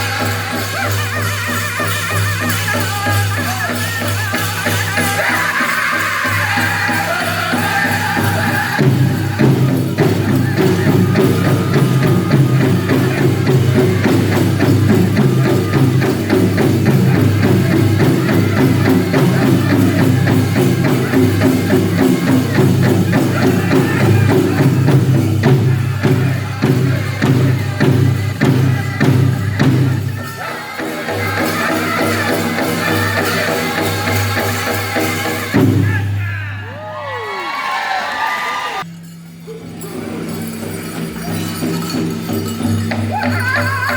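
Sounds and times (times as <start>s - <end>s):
drum group singing in chorus: 0.0s - 36.3s
big drum beat: 4.7s - 30.4s.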